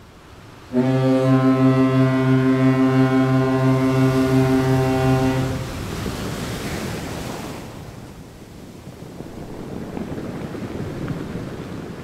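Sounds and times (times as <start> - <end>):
rushing water wash: 0.0 - 12.0
ship's horn blast: 0.7 - 6.1.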